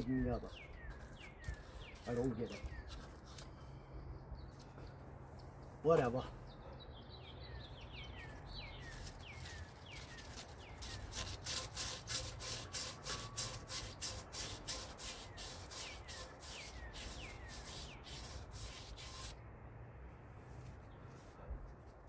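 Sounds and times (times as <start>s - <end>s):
birds chirping: 0.0s - 11.4s, 15.0s - 19.3s
hand sanding strokes: 8.9s - 19.4s.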